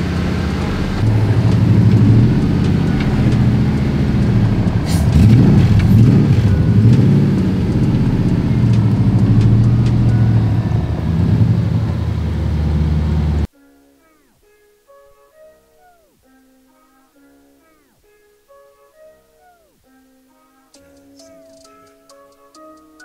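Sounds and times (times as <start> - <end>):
vehicle engine revving: 0.0 - 13.5.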